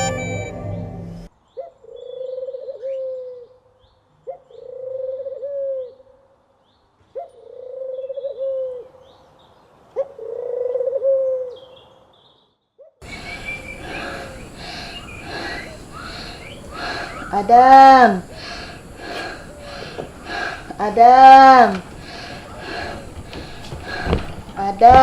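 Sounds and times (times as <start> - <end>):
dove cooing: 1.9 - 3.5, 4.3 - 6.0, 7.2 - 9.0, 10.0 - 11.7, 13.0 - 25.0
small birds chirping: 11.5 - 25.0.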